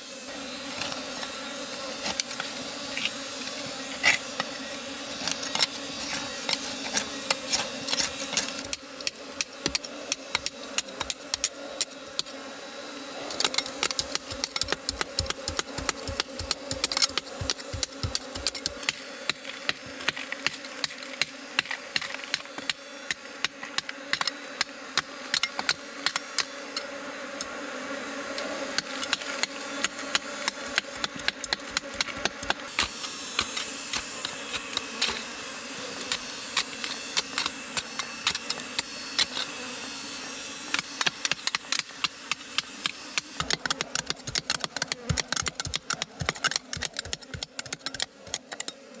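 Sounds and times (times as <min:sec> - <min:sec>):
honeybees buzzing: 0:00.0 - 0:49.0
sharp clicks and knocks: 0:40.7 - 0:48.8.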